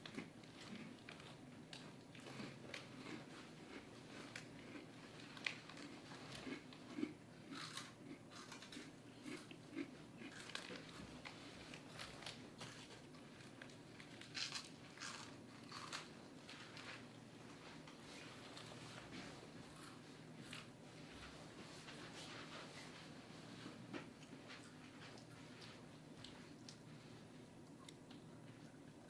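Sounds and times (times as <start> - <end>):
person chewing crunchy snack: 0.0 - 11.1, 11.7 - 16.8.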